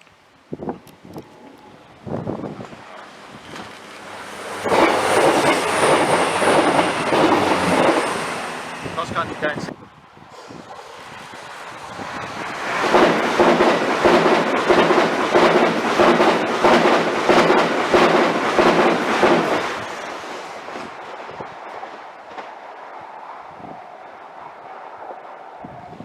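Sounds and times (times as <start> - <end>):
train passing at speed: 0.2 - 26.0
wheels clicking over rail joints: 0.7 - 9.6, 12.6 - 22.6.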